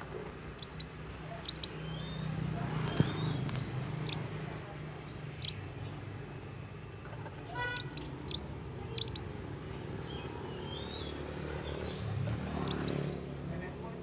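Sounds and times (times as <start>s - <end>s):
bird chirping: 0.0s - 13.6s.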